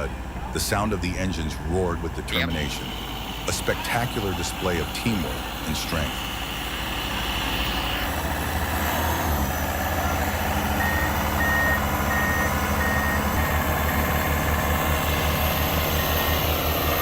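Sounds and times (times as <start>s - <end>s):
excavator diesel engines droning: 0.0s - 17.0s
travel alarm beeping: 10.3s - 13.6s.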